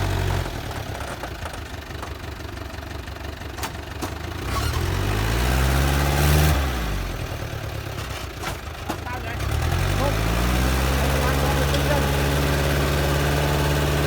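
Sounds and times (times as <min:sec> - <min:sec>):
diesel engine idling and revving: 0:00.0 - 0:14.0.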